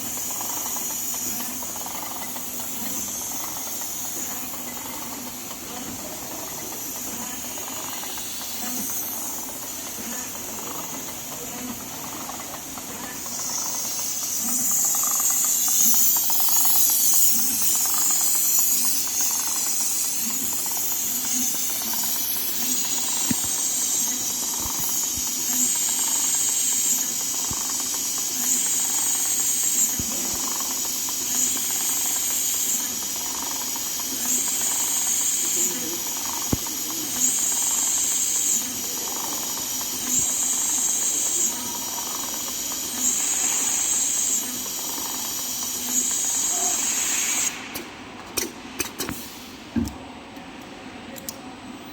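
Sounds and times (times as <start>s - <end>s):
sewing machine running: 0.0s - 46.5s
loud steady hiss: 0.0s - 49.8s.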